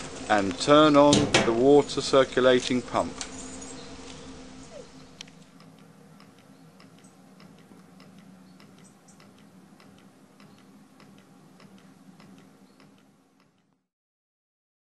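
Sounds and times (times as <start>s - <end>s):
boiler hum: 0.0s - 13.9s
light irregular ticking: 5.2s - 13.8s.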